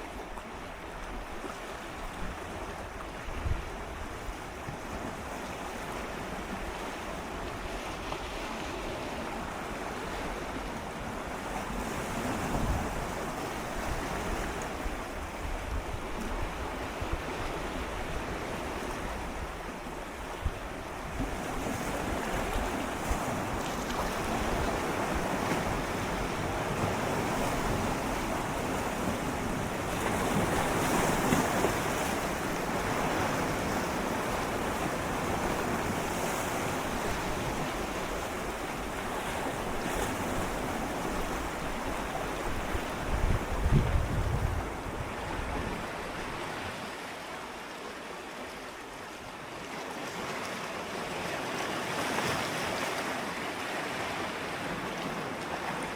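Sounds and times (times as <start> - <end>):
waves lapping against rocks: 0.0 - 55.9.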